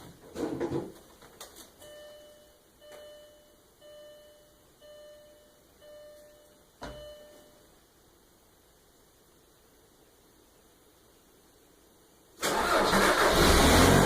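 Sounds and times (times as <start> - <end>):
car warning chime beeping: 1.8 - 7.7.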